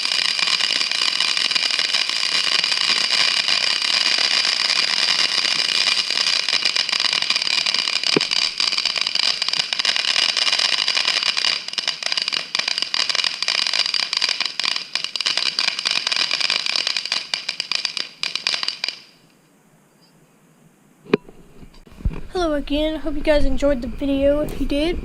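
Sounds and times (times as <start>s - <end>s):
bicycle riding hiss and rattles: 0.0s - 19.2s.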